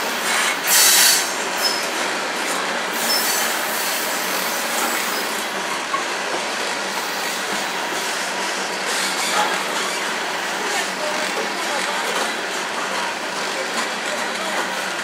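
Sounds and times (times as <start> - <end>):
steel wheels rolling on rails: 0.1 - 15.0
faint high wheel squeals: 0.7 - 2.0, 3.0 - 4.1.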